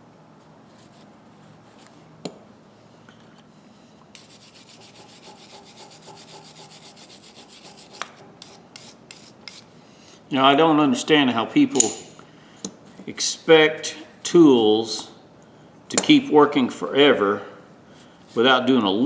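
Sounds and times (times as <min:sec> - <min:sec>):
fast scrubbing on metal pliers: 0:04.2 - 0:09.7.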